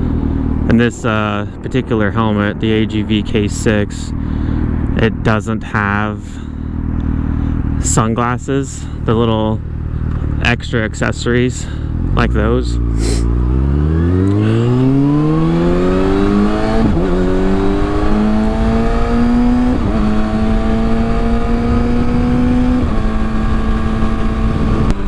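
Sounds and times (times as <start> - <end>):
motorcycle engine accelerating: 0.0 - 5.3, 6.2 - 8.0, 11.1 - 25.0
wind noise on microphone: 14.6 - 25.0.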